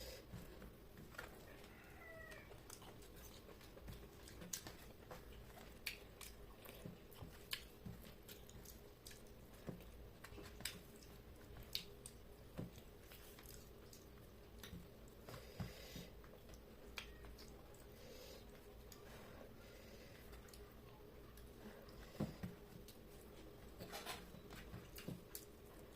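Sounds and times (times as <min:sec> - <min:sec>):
chewing and mouth smacking: 0:02.2 - 0:15.4, 0:20.2 - 0:22.0.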